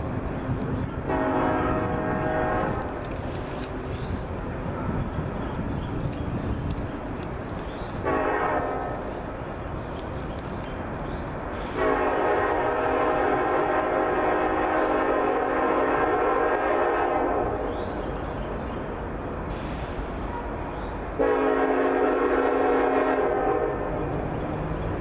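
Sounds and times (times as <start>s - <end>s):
low rumble of train: 0.0s - 25.0s
locomotive air horn blasts: 1.1s - 3.0s, 8.0s - 9.1s, 11.7s - 17.7s, 21.2s - 24.1s.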